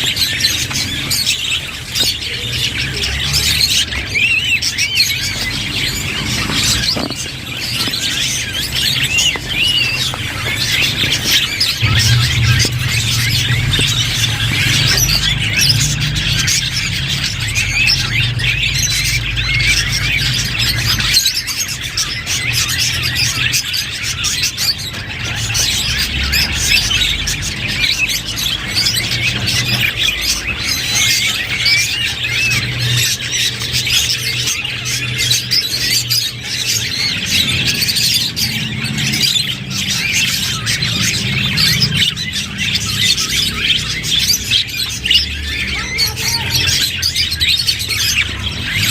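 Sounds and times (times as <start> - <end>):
budgerigars chattering and chirping: 0.0 - 48.9
low steady hum: 11.0 - 20.0.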